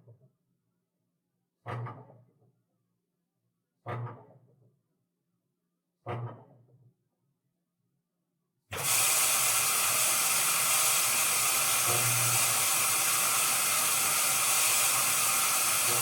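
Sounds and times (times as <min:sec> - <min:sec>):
inlet valve opening: 0:08.8 - 0:16.0
water rushing into drum: 0:08.8 - 0:16.0.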